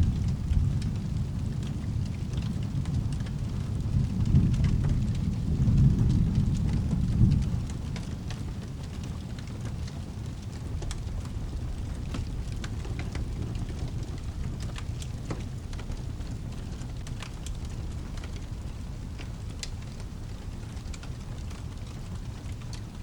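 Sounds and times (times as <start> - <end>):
low storm rumble: 0.0 - 23.0
fireplace crackling and popping: 0.1 - 23.0.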